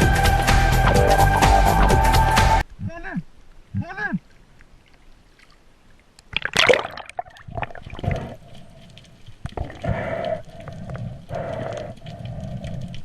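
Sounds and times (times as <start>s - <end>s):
water splashing and sloshing: 2.7s - 13.0s.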